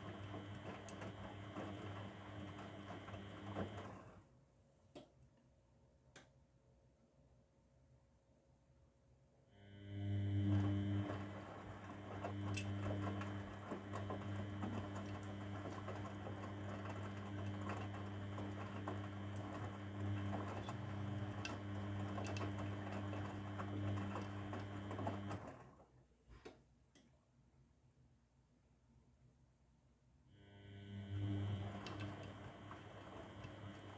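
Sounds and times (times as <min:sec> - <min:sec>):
washing machine motor hum: 0:00.0 - 0:04.4, 0:09.6 - 0:25.9, 0:30.4 - 0:33.9.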